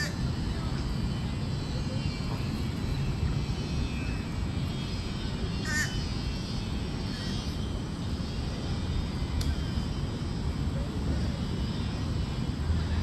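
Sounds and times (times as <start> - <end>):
low outdoor rumble: 0.0 - 13.0
bird call: 5.4 - 6.1.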